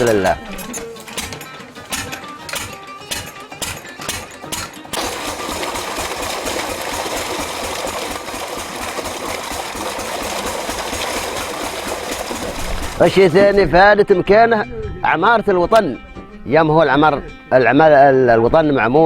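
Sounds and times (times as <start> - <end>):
background music with plucked notes: 0.0 - 8.2, 11.3 - 19.0
motorised machine chattering: 0.0 - 13.7.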